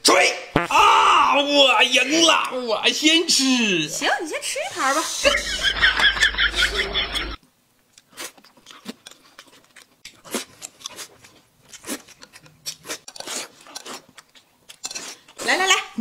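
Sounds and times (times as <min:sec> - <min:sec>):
man chewing: 0:07.8 - 0:15.5.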